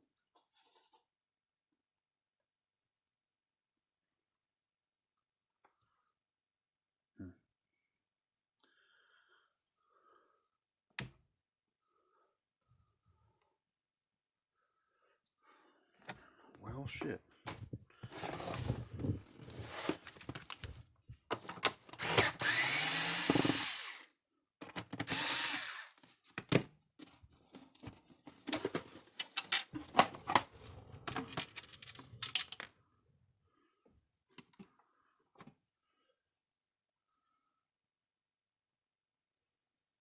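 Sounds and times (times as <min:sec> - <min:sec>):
power screwdriver whining: 0:21.9 - 0:24.1, 0:25.0 - 0:26.0
tools and parts clicking: 0:28.5 - 0:30.0.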